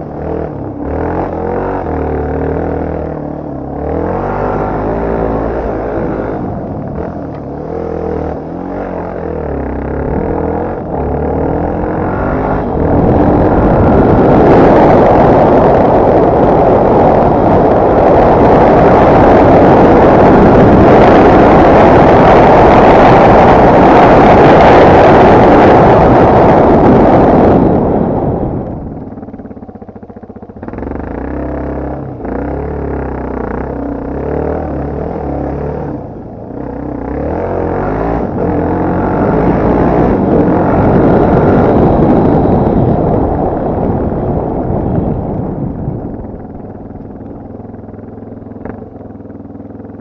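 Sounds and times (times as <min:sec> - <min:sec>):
wind noise on microphone: 0:00.0 - 0:50.0
dirt bike engine revving: 0:00.2 - 0:28.2, 0:36.6 - 0:44.0.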